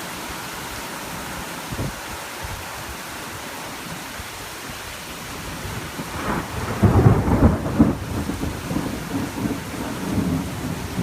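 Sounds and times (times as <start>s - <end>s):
steady rain falling: 0.0s - 11.0s
thunder rumbling: 5.6s - 11.0s.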